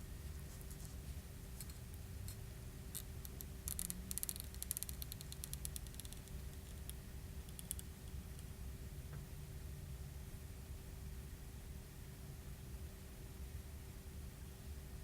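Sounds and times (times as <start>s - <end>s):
steady low hum: 0.0s - 15.0s
faint clicks and crackling: 2.9s - 8.5s.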